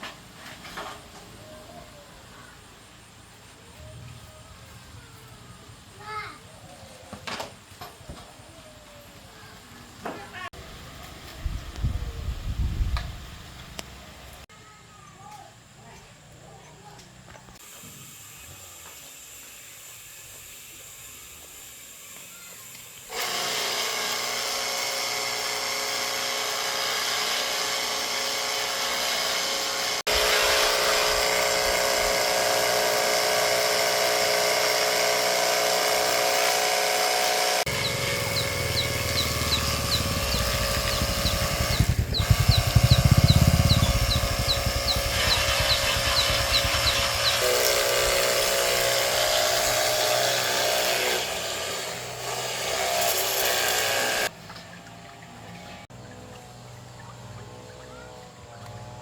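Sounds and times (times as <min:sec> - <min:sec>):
electric motor running: 0:23.1 - 0:54.3
low pulsing: 0:37.6 - 0:48.2.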